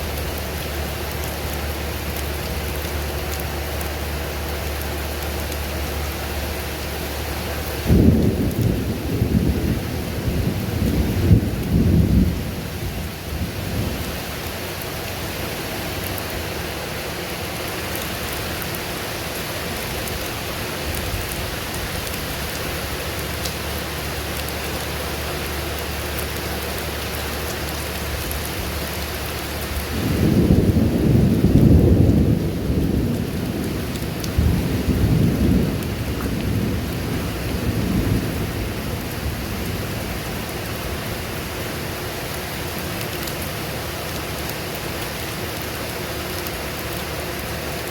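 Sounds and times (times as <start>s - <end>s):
steady rain falling: 0.0s - 47.9s
rolling thunder: 7.8s - 14.4s, 29.7s - 41.9s.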